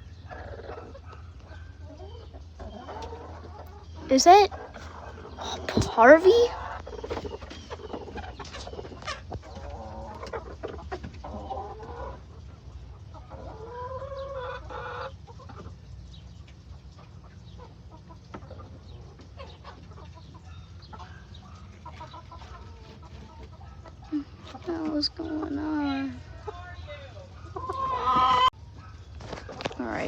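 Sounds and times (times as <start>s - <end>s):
hens clucking: 0.0s - 30.0s
hen drawn-out calls: 20.9s - 28.5s.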